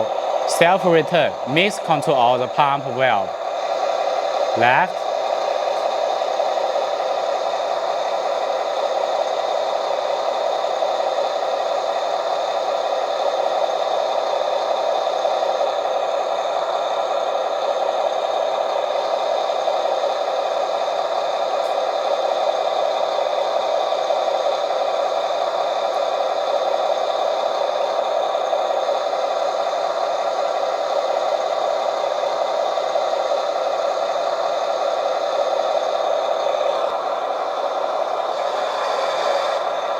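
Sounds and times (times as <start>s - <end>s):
simulated engine noise from speaker: 0.0s - 7.0s.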